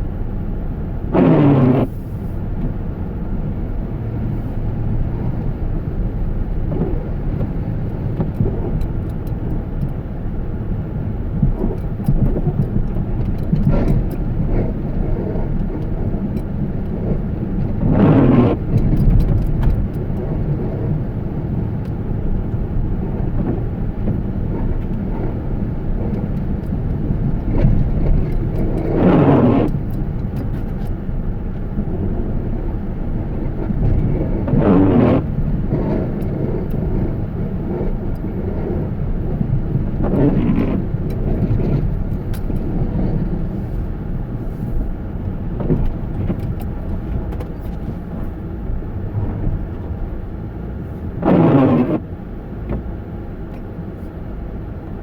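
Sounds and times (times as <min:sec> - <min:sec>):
car driving rumble: 0:00.0 - 0:55.0.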